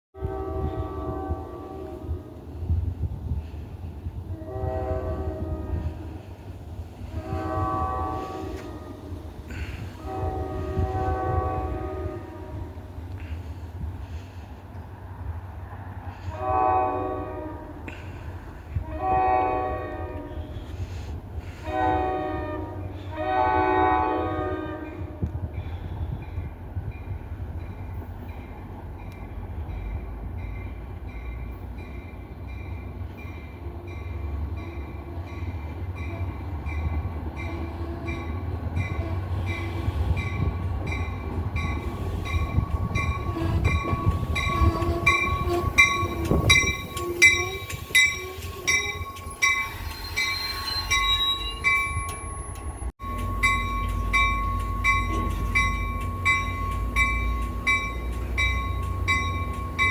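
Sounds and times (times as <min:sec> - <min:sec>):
train passing with wheel clatter: 0:00.2 - 0:59.9
crossing bell dinging: 0:26.3 - 0:59.9.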